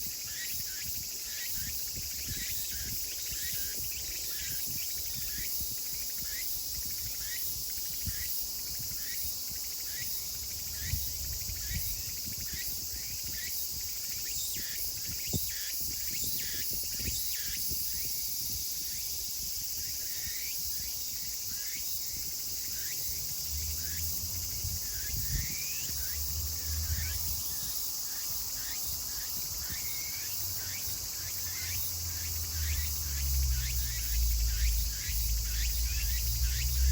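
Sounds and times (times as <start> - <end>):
cicadas calling: 0.0 - 36.9
faint low rumble: 31.8 - 36.9.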